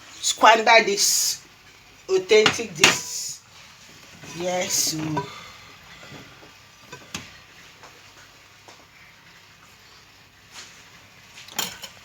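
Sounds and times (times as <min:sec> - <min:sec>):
cookware clicks and knocks: 0:11.5 - 0:12.0.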